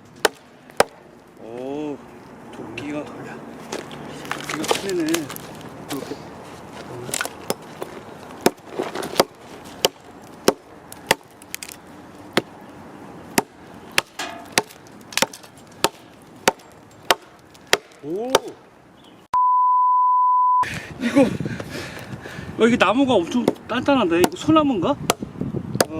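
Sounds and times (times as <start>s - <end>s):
axe chopping log: 0.2s - 1.0s, 7.1s - 7.7s, 8.4s - 12.5s, 13.3s - 18.6s, 23.3s - 25.9s.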